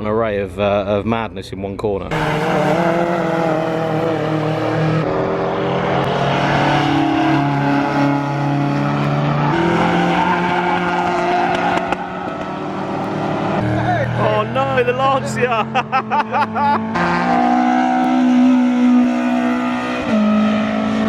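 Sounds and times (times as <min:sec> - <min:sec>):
rally car engine under load: 0:00.0 - 0:21.0.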